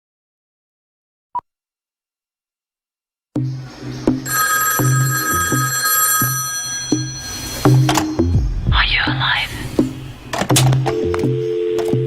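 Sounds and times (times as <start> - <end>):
steady high ringing tone: 4.3 - 8.4.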